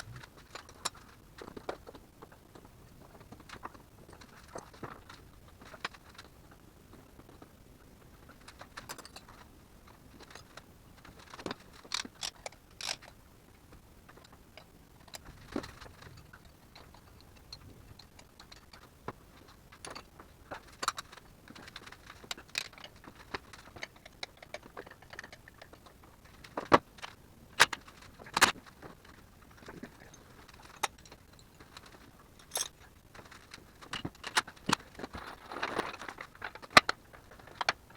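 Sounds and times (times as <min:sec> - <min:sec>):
metal tools clinking: 0:31.8 - 0:34.0.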